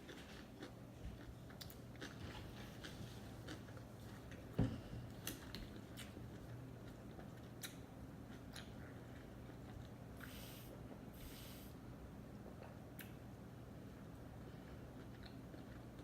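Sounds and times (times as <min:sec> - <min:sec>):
chewing food: 0:00.0 - 0:10.0, 0:14.0 - 0:16.0.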